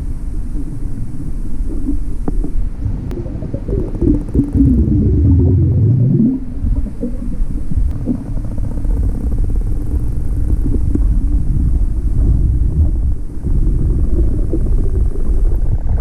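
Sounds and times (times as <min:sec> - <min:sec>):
wind and water rumble: 0:00.0 - 0:16.0
motorboat engine running: 0:06.4 - 0:15.5.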